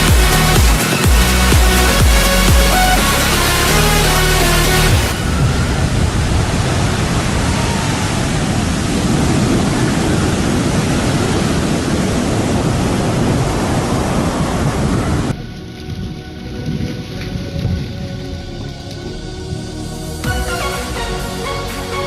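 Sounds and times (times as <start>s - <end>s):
music: 0.0s - 5.2s, 15.3s - 22.0s
loud rushing noise: 0.0s - 15.4s.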